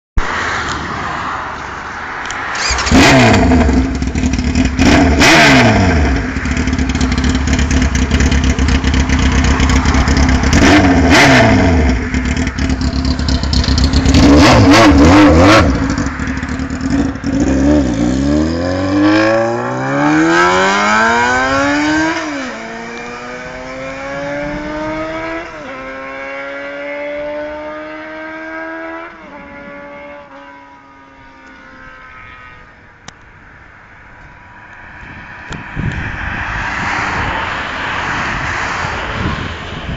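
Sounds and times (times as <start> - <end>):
motorcycle engine revving: 2.5 - 31.3.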